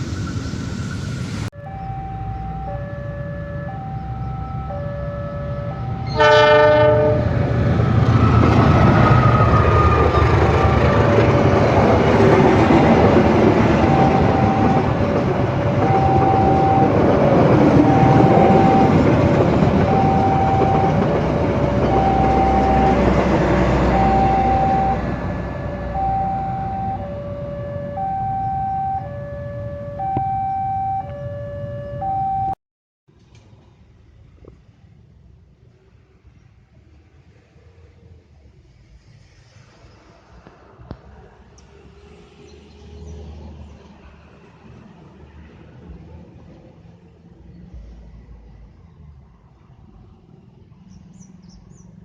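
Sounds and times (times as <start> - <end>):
train rumble and wheel clatter: 0.0 - 1.5, 2.5 - 29.2
two-note electronic warning beeps: 1.6 - 6.3, 13.8 - 17.0, 17.8 - 19.2, 19.8 - 23.2, 23.8 - 32.6
train horn blast: 5.6 - 7.5.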